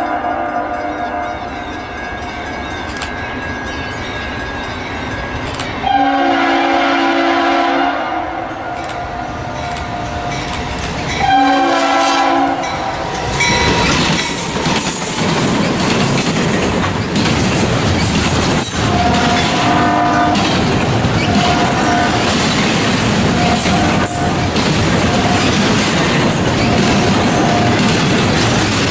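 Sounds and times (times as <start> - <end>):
locomotive air horn: 0.0 - 1.5, 5.8 - 10.3, 11.2 - 13.0, 18.8 - 20.5, 21.3 - 22.3, 23.4 - 24.5
train passing with rumble: 0.0 - 28.9
wheel clatter on rails: 12.7 - 28.9.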